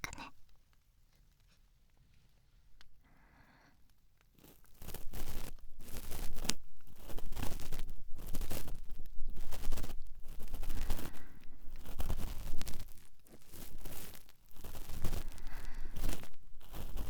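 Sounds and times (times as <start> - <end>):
cotton swab scraping in ear: 4.4 - 17.0.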